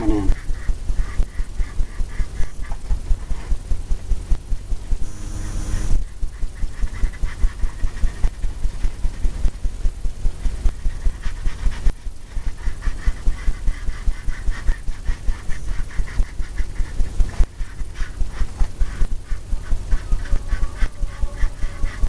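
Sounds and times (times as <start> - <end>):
paintbrush scrubbing on canvas: 10.8 - 18.9.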